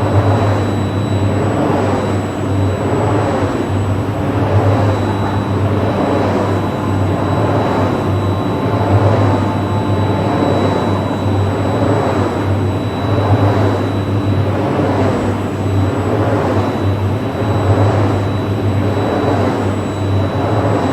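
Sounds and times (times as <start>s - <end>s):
wind turbine low hum: 0.0s - 20.9s
wind turbine whooshing: 3.4s - 14.4s
faint high tone: 4.1s - 14.1s.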